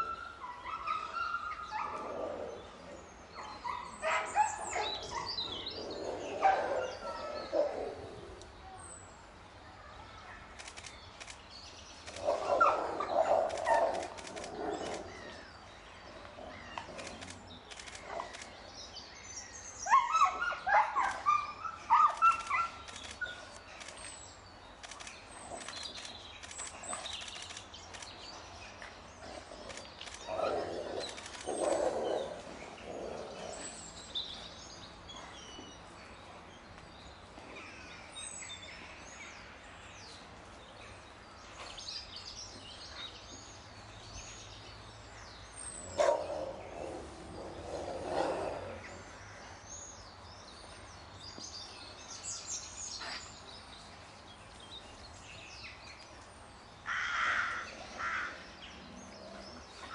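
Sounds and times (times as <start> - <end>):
small birds chirping: 0.0 - 59.9
wolves snarling and yelping: 19.8 - 23.4, 29.3 - 33.8.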